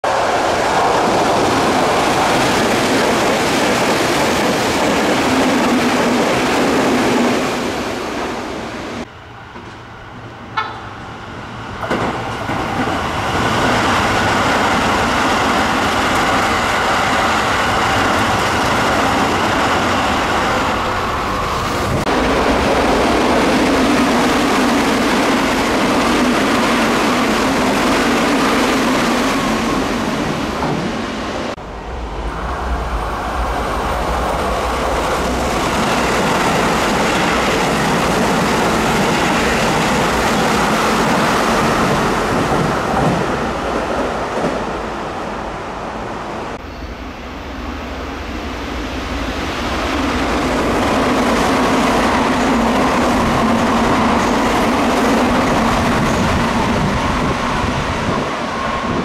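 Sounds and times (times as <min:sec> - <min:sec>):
electric trains passing at speed: 0:00.0 - 0:59.0
wheels rushing on rails: 0:00.0 - 0:59.0.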